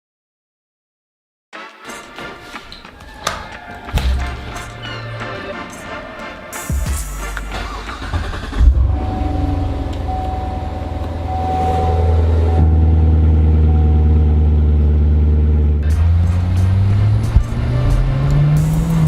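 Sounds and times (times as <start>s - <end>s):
engine revving: 6.6s - 19.0s
car engine idling: 6.7s - 17.5s.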